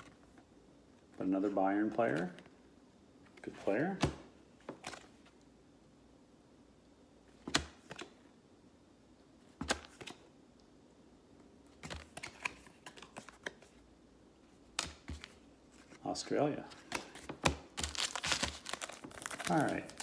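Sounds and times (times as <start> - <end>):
cards clicking and tapping: 7.4 - 8.2, 9.6 - 10.2, 11.8 - 13.7, 14.7 - 15.4, 16.7 - 20.0.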